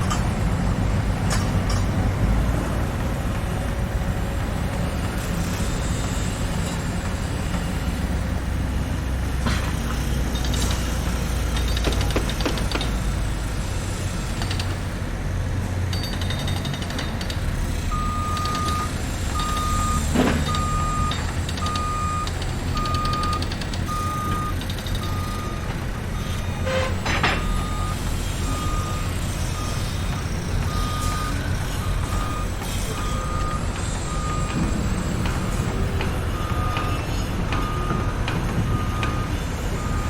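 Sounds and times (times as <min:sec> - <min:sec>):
truck engine rumbling: 0:00.0 - 0:40.0
reversing alarm beeping: 0:17.9 - 0:40.0
short metallic knocks: 0:26.7 - 0:27.9.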